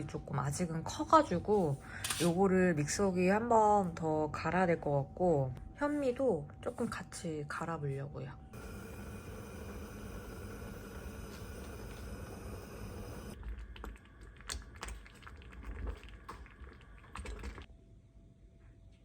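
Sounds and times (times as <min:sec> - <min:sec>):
blender motor grinding: 0:08.6 - 0:13.4.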